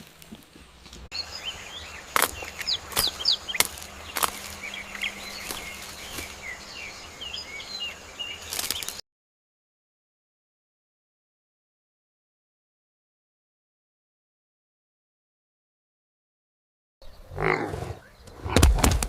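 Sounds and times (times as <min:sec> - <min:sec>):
birds chirping: 0:00.5 - 0:09.0, 0:17.0 - 0:18.8.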